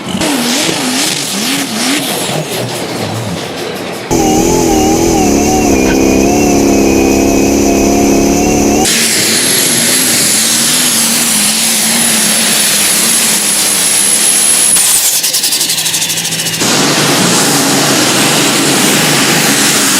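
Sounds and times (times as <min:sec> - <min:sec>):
tractor engine running flat out: 0:02.0 - 0:19.9
high steady whine: 0:04.1 - 0:09.4.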